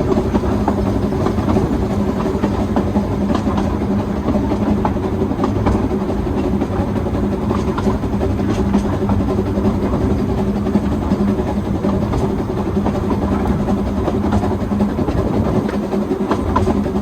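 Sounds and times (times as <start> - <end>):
train rumbling on track: 0.0 - 17.0.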